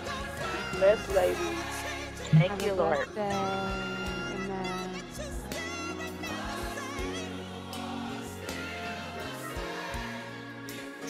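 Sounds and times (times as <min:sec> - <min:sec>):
gospel choir singing: 0:00.0 - 0:03.1, 0:05.0 - 0:11.0
steady bass: 0:02.3 - 0:03.0.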